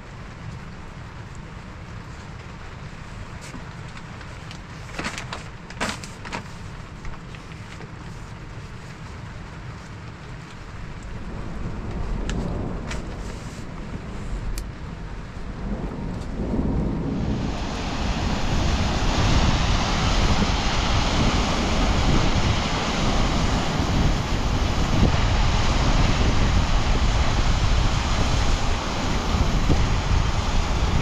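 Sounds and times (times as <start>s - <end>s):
wind buffeting the microphone: 10.9s - 31.0s.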